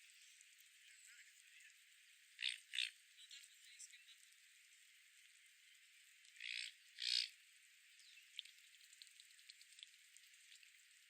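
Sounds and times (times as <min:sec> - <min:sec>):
water bird squawks: 0:02.4 - 0:03.0, 0:06.3 - 0:07.4
faint bird chirps: 0:07.9 - 0:08.6.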